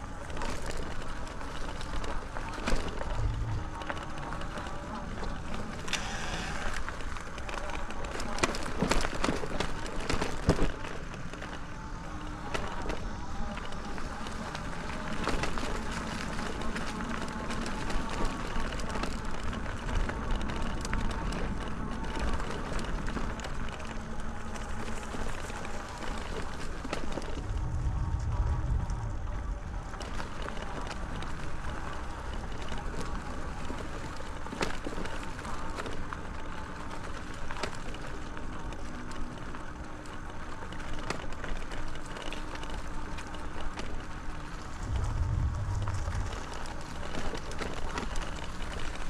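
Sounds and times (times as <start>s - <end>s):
bike tyres on sandy trail: 0.0s - 49.0s
faint motor hum: 0.0s - 49.0s
wind: 0.0s - 49.0s
wind buffeting microphone: 2.2s - 7.4s, 26.8s - 32.5s, 44.2s - 49.0s.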